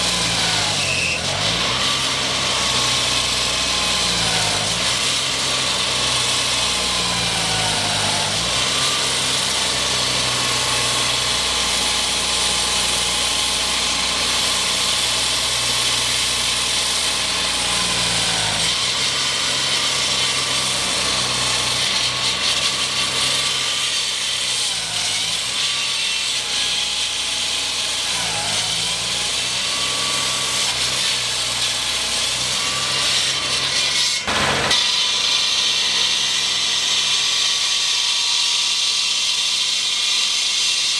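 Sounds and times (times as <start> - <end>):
construction machinery hissing: 34.2 - 37.5.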